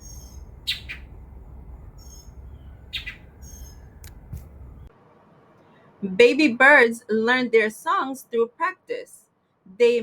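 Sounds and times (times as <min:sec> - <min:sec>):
bird chirps: 0:00.0 - 0:01.2, 0:01.8 - 0:04.1
thin high bird calls: 0:00.0 - 0:01.2, 0:01.9 - 0:04.4
steady low rumble: 0:00.0 - 0:04.9.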